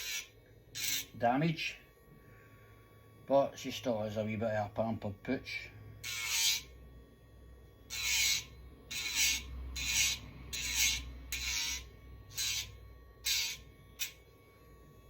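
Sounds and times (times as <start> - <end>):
rasping hiss of grinding nail: 0.0 - 1.1, 6.0 - 6.7, 7.9 - 14.2
nail grinder whining: 0.0 - 1.2, 6.0 - 6.7, 7.9 - 14.3.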